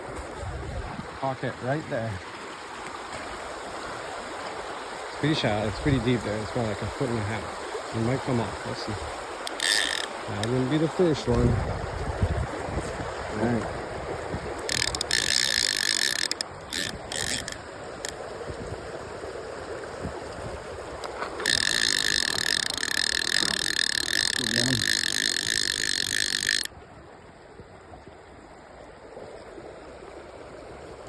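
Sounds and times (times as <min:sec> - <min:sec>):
river water rushing: 0:01.2 - 0:11.2
fishing reel drag buzzing: 0:09.3 - 0:11.2, 0:14.6 - 0:18.2, 0:21.0 - 0:26.7.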